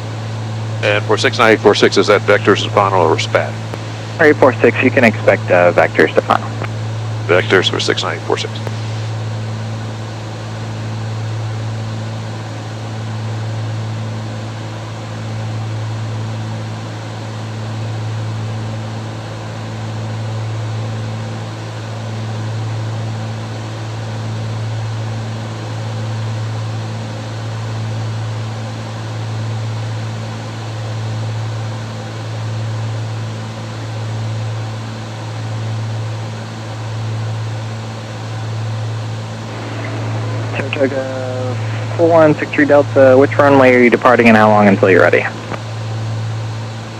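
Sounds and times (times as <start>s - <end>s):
pulsing low hum: 0.0s - 21.3s, 35.9s - 46.9s
twin propeller engines droning: 0.0s - 46.9s.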